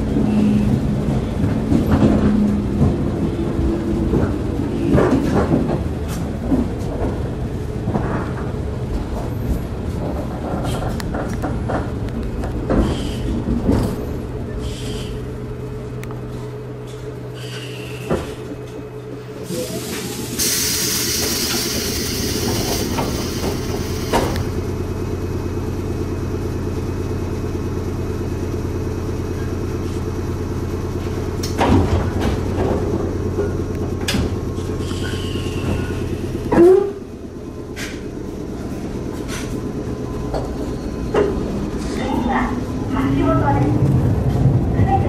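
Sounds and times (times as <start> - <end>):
train equipment hum: 0.0 - 45.0
train running noise: 0.0 - 45.0
train doors closing clunk: 0.2 - 15.2, 16.8 - 24.6, 31.4 - 37.1, 38.7 - 42.5
door air hiss: 19.6 - 24.5.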